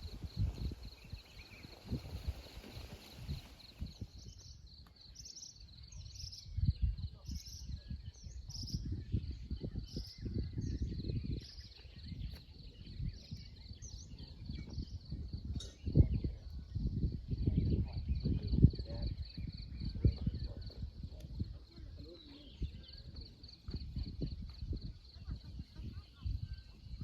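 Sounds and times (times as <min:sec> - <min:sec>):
bird chirping: 0:00.0 - 0:27.0
wind on microphone: 0:00.0 - 0:27.0.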